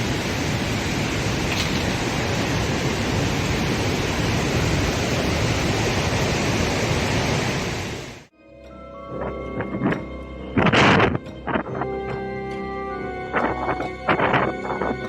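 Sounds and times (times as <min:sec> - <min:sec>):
storm winds rushing: 0:00.0 - 0:08.3.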